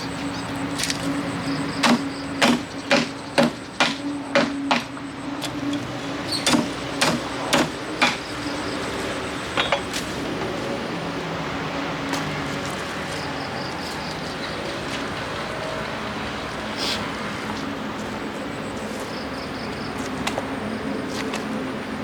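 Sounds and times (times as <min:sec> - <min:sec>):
cleaver chopping fish: 0:01.8 - 0:08.4.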